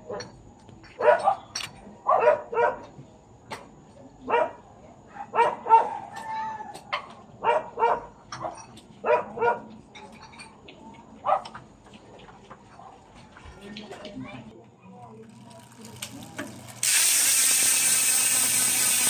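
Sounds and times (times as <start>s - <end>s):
dog barking: 1.0s - 2.9s, 4.3s - 6.1s, 7.4s - 8.1s, 9.0s - 9.7s, 11.2s - 11.6s.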